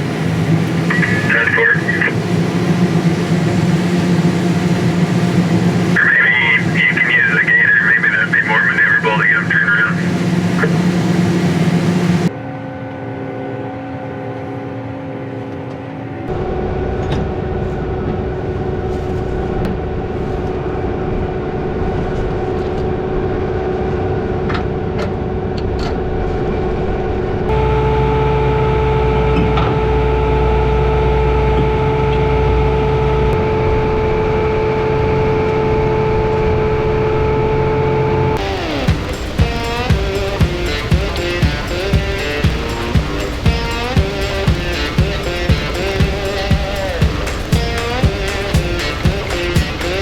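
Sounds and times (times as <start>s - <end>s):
farm vehicle engine running: 0.0s - 12.3s, 27.5s - 50.0s.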